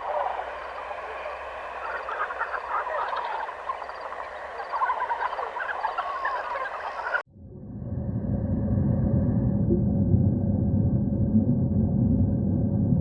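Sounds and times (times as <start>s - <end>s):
flock of fowl calling: 0.0s - 7.2s
low rumble: 7.3s - 13.0s.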